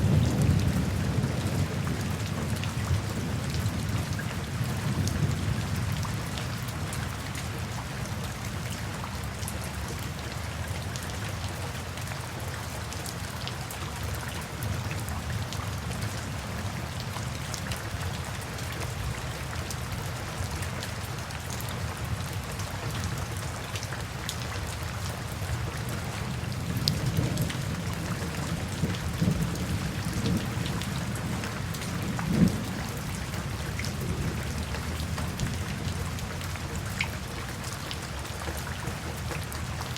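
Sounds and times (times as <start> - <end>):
steady rain: 0.0 - 39.9
raindrops ticking: 13.7 - 39.9.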